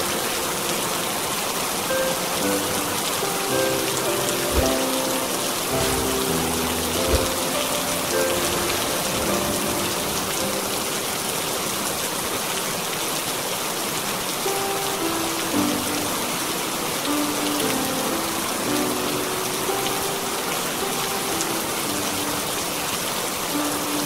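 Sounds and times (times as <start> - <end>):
soft sustained music notes: 0.0 - 11.8
heavy rain: 0.0 - 24.0.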